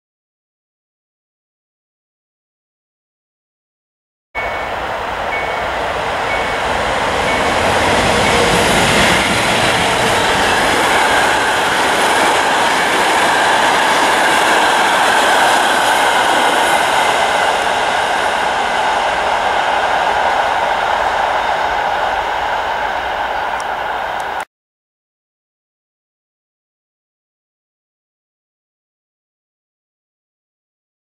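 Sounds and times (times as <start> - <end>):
train wheels rumbling on rails: 4.4 - 24.4.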